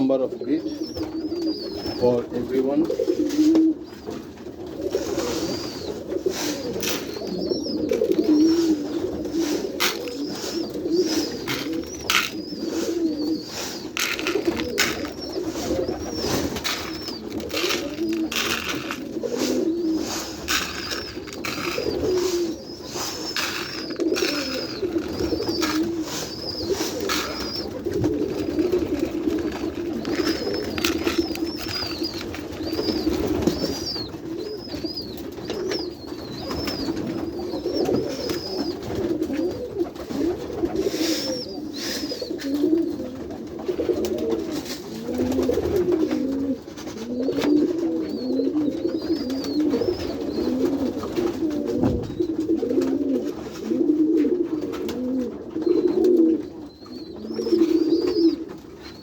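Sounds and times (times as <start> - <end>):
pigeons cooing: 0.0 - 59.0
sharp clicks and knocks: 26.7 - 32.8.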